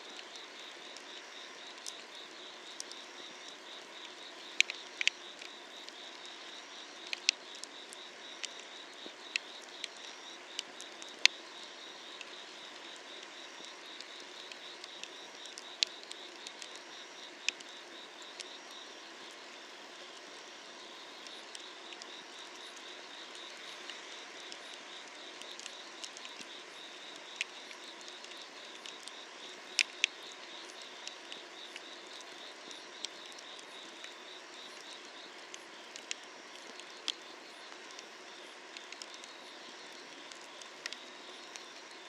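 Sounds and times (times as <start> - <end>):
firewood crackling and popping: 0.0 - 18.6, 25.4 - 42.0
insects trilling: 0.0 - 42.0.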